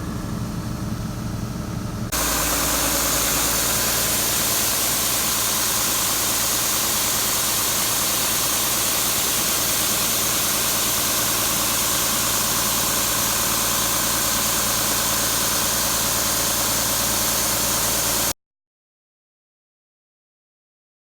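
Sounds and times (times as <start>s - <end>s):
heavy engine running: 0.0s - 18.3s.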